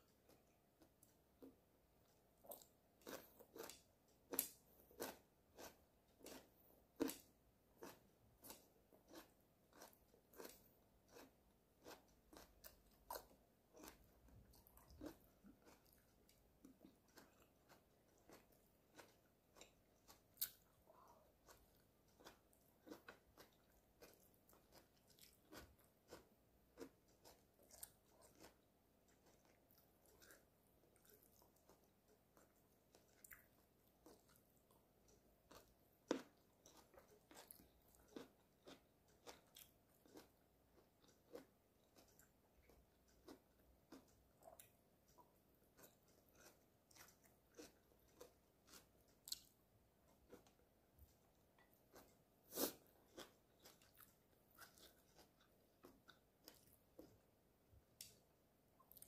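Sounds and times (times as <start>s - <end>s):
person chewing crunchy food: 0.1s - 58.2s.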